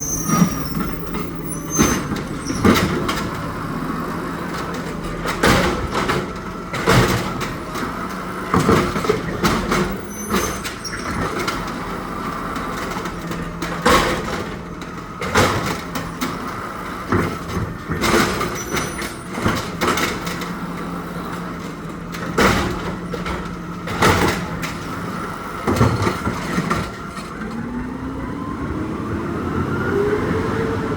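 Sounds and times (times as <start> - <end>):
garbage truck diesel engine: 0.0 - 30.9
metallic clanks and bangs: 12.5 - 27.3.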